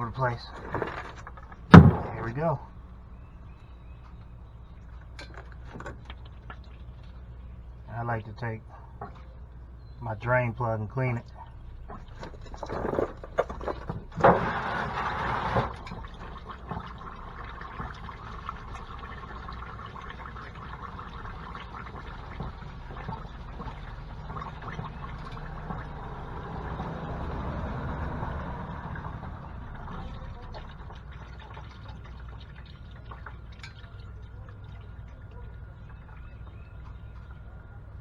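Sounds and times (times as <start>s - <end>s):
oil pouring into drain pan: 11.8s - 37.5s.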